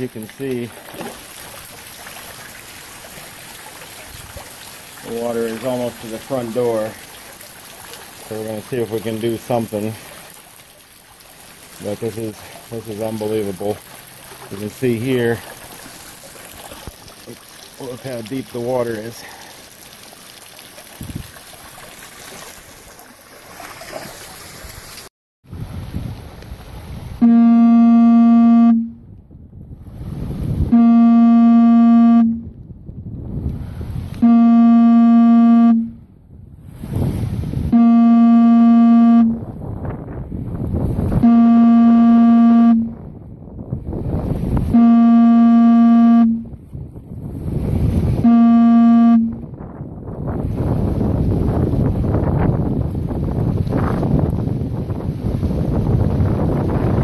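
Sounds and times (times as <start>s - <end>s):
water or rain noise: 0.0s - 57.0s
horn blasts: 27.2s - 29.0s, 30.7s - 32.5s, 34.2s - 36.0s, 37.7s - 39.4s, 41.2s - 43.0s, 44.7s - 46.5s, 48.2s - 49.4s.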